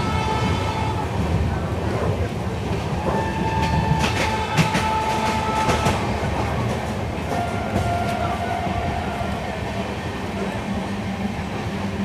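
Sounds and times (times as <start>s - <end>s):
train wheels rumbling on track: 0.0s - 12.0s
wheels clacking over rail joints: 1.2s - 8.9s.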